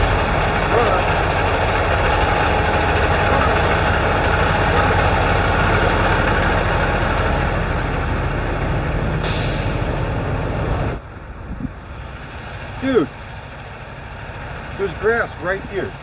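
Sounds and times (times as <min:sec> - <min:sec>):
diesel truck engine running: 0:00.0 - 0:16.0
air brakes hissing: 0:09.2 - 0:10.0.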